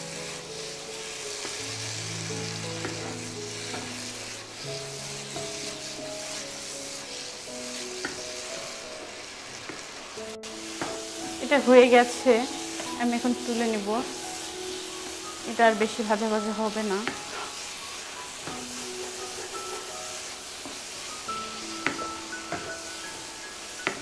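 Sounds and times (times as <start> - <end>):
soft instrumental music: 0.0 - 24.0
spatula stirring and scraping: 0.0 - 24.0
vegetables sizzling in oil: 0.0 - 24.0
spatula tapping on pan: 10.8 - 11.2, 21.8 - 22.8.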